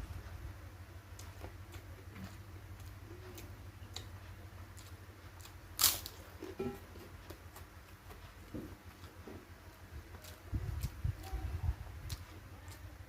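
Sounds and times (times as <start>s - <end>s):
sharp crunch: 5.8s - 6.2s.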